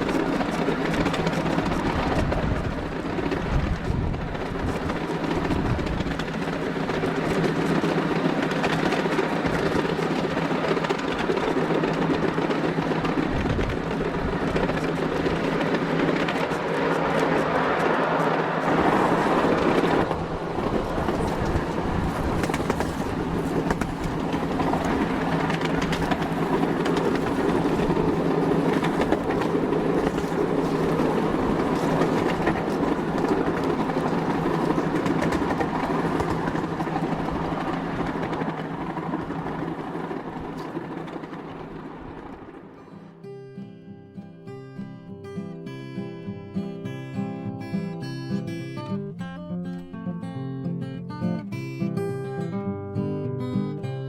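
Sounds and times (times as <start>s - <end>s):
train rumbling on rails: 0.0s - 43.4s.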